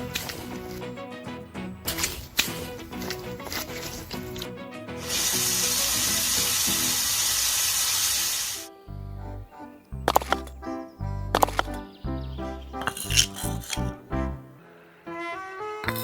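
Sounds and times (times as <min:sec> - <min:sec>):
background music with bass: 0:00.0 - 0:07.1, 0:08.7 - 0:14.6
loud steady hiss: 0:05.0 - 0:08.8.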